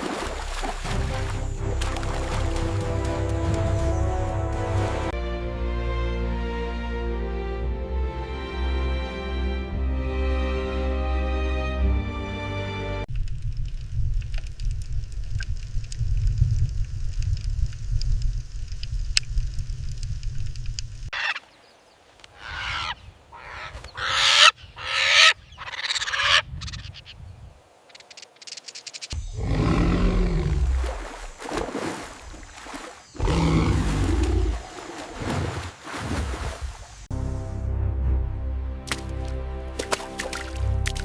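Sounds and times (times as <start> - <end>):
bird calls: 21.1 - 31.5.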